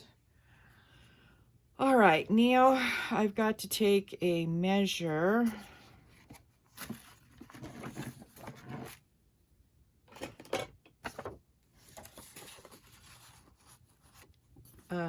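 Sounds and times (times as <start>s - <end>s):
paper rustling and scraping: 6.0s - 9.0s, 11.0s - 14.9s.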